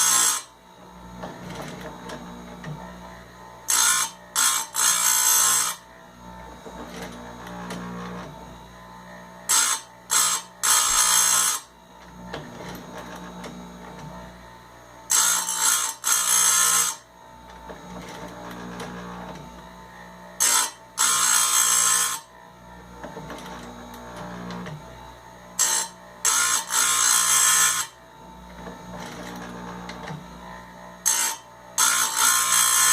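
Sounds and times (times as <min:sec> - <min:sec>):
harsh grinding on chain tooth: 0:00.0 - 0:00.5, 0:03.7 - 0:05.8, 0:09.5 - 0:11.7, 0:15.1 - 0:17.0, 0:20.4 - 0:22.3, 0:25.6 - 0:28.0, 0:31.0 - 0:32.9
grinder motor humming: 0:00.0 - 0:32.9.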